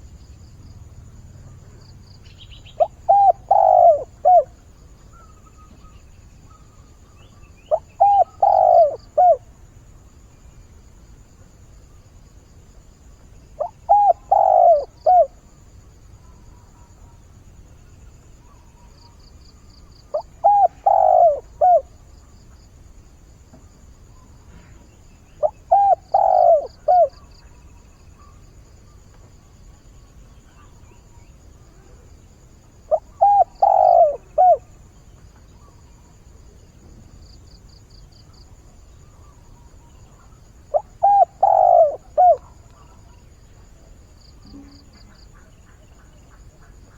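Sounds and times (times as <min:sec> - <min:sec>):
dove cooing: 0:02.5 - 0:04.6, 0:07.7 - 0:09.5, 0:13.6 - 0:15.4, 0:20.1 - 0:22.0, 0:25.4 - 0:27.4, 0:32.8 - 0:34.8, 0:40.0 - 0:43.1.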